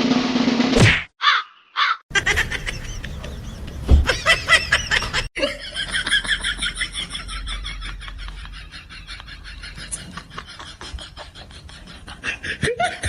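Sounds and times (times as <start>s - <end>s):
bird calls: 1.2s - 5.3s.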